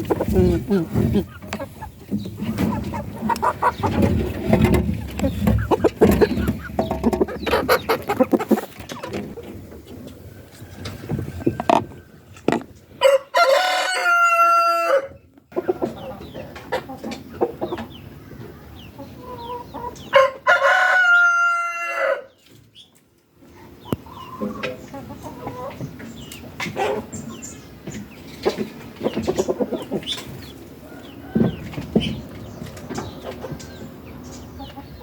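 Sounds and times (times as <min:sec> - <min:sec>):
chickens clucking: 0:00.0 - 0:35.0
rooster crowing: 0:13.0 - 0:15.1, 0:20.2 - 0:22.3.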